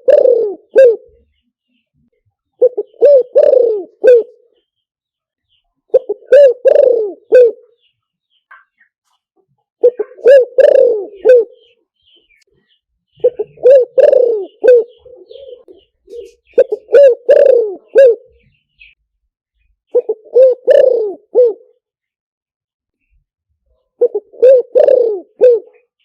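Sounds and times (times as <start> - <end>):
dove cooing: 0.0 - 1.3, 2.6 - 4.6, 5.9 - 7.8, 9.8 - 11.8, 13.2 - 18.9, 19.9 - 21.8, 23.9 - 26.0.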